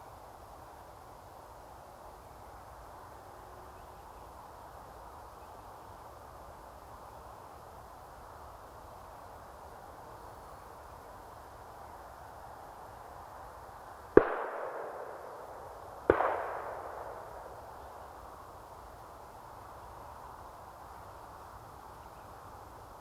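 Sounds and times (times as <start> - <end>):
shotgun shots echoing: 14.2 - 17.7.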